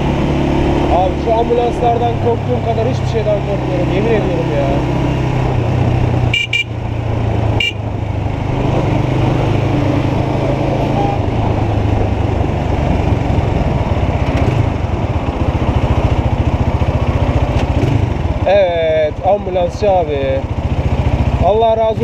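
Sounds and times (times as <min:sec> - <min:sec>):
motorcycle engine running: 0:00.0 - 0:22.0
short horn beep: 0:06.3 - 0:06.8, 0:07.6 - 0:07.8, 0:10.8 - 0:11.3
wind noise: 0:06.9 - 0:16.5.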